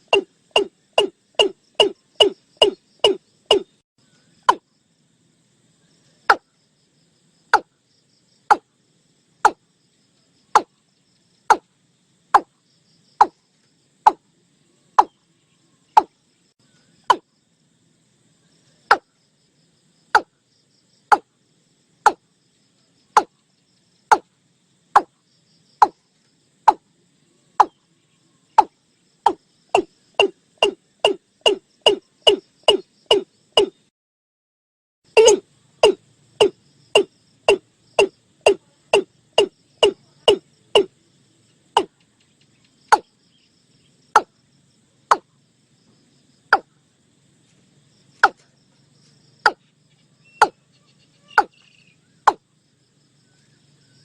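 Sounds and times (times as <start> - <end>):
bird calling hollow notes: 0.0 - 3.8, 4.4 - 4.7, 10.6 - 10.8, 15.0 - 15.2, 27.6 - 27.8, 28.6 - 33.9, 35.2 - 40.9, 51.2 - 52.4.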